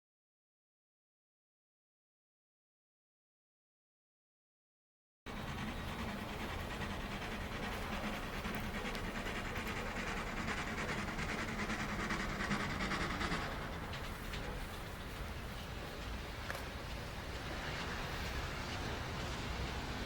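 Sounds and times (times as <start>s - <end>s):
train rumbling past: 5.3s - 20.0s.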